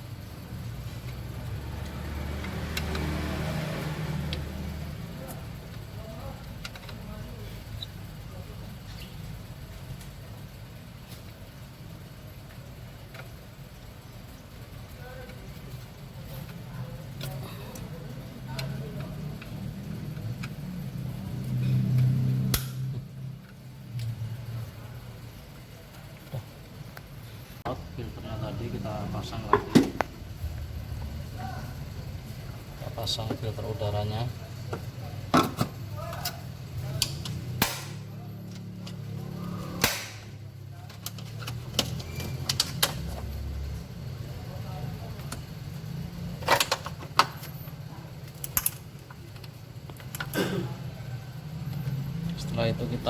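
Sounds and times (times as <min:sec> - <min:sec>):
low uneven hum: 0:04.9 - 0:37.4
sharp click: 0:22.5 - 0:22.9.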